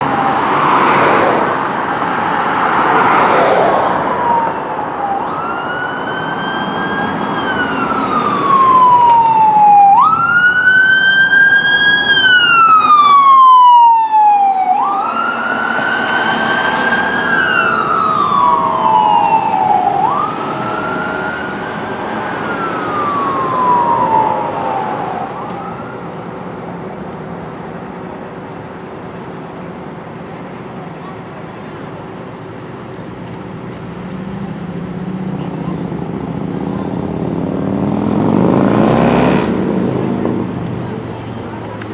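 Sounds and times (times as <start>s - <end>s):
fire engine siren wailing: 0.0s - 31.9s.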